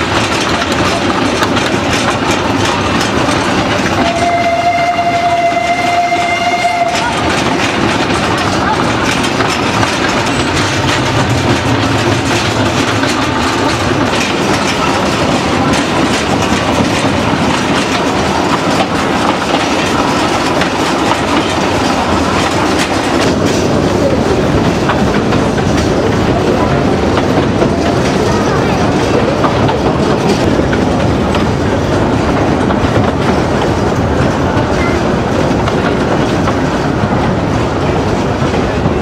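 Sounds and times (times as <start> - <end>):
train wheels clicking over rail joints: 0.0 - 39.0.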